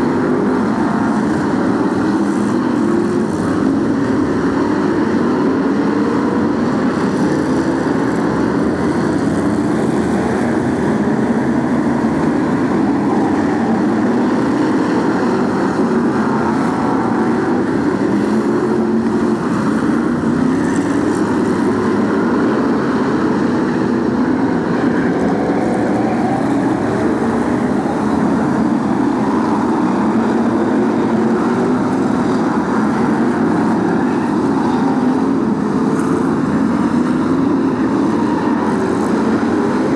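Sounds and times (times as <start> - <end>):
racing car engines: 0.0 - 39.9.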